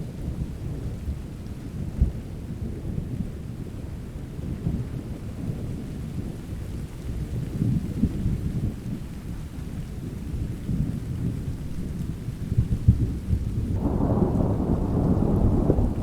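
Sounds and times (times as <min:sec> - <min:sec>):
steady rain: 0:00.0 - 0:16.0
thunder rumbling: 0:12.5 - 0:16.0
thunder crack: 0:13.8 - 0:16.0.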